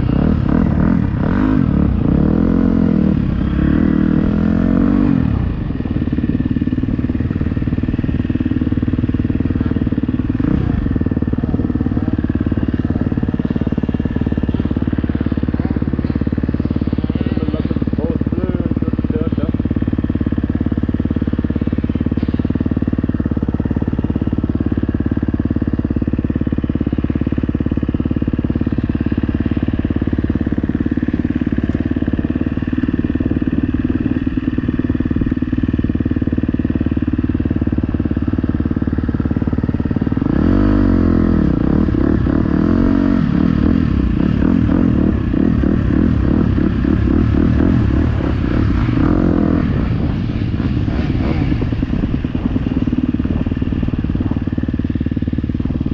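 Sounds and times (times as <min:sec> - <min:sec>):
motocross bike engine revving: 0:00.0 - 0:05.6, 0:39.8 - 0:54.4.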